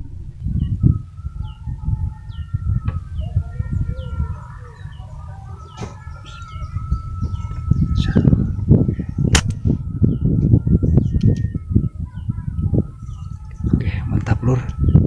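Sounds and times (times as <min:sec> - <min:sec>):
steady low rumble: 0:00.0 - 0:15.0
small bird high chirps: 0:00.5 - 0:09.4, 0:10.1 - 0:13.8
sharp clicks: 0:09.3 - 0:09.6.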